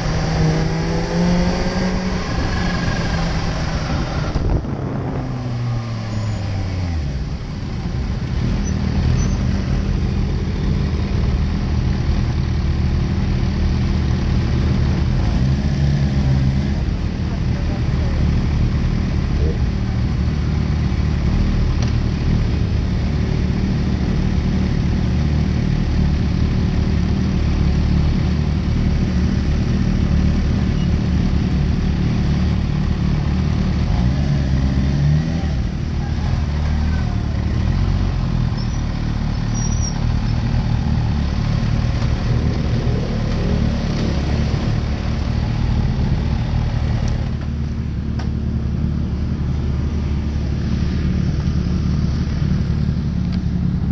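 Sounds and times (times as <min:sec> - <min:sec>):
motorcycle engines idling: 0:16.2 - 0:34.0, 0:35.7 - 0:53.9.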